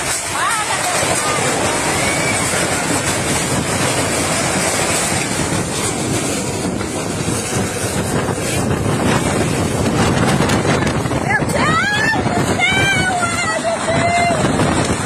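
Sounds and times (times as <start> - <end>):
boat rushing through water: 0.0 - 15.0
wind buffeting microphone: 0.0 - 15.0.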